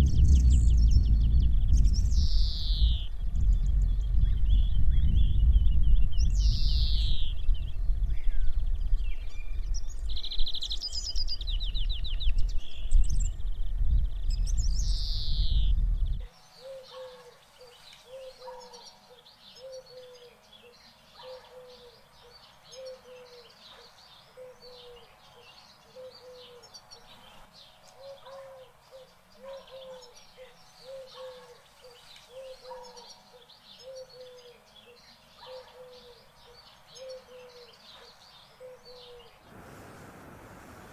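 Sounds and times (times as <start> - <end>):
heavy wind noise: 0.0 - 16.3
faint bird chirps: 0.0 - 39.5
high down-slurred bird calls: 14.8 - 39.6
bird hooting: 16.6 - 27.1, 27.9 - 39.4.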